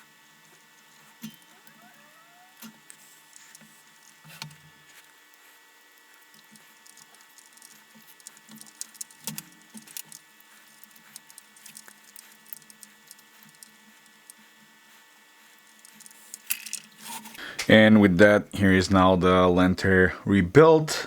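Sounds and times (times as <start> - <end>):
faint steady hum: 0.0 - 21.0
plastic parts clicking and tapping: 6.3 - 14.4, 15.7 - 17.4.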